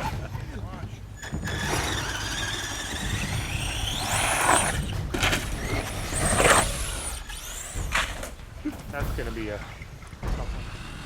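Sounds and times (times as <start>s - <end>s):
toy truck motor whining: 1.2s - 8.4s.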